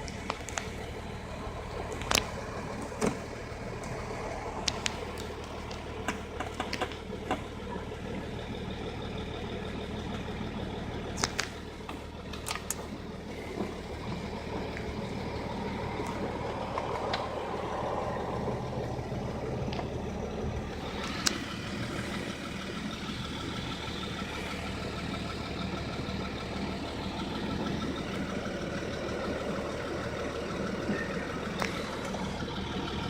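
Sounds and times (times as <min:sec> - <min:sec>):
diesel engine idling: 0:00.0 - 0:33.0
sharp clicks: 0:11.2 - 0:11.6.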